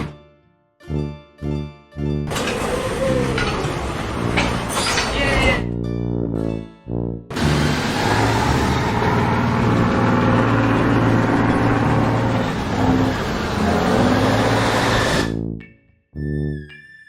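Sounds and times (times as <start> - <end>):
heavy machine running: 2.3 - 5.7, 7.3 - 15.4.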